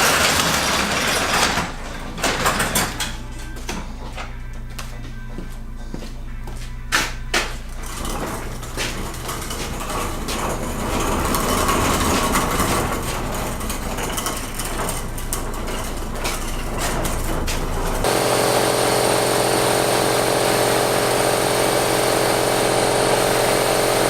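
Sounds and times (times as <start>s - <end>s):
hard objects clattering and scraping: 7.7s - 18.2s.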